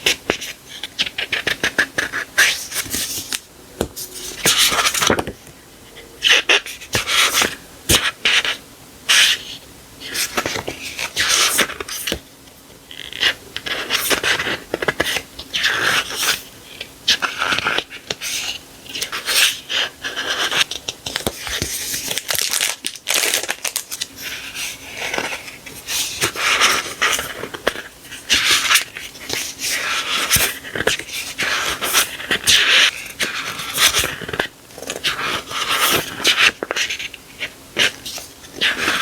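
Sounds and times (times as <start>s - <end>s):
sticker packaging rustling: 20.2s - 39.0s.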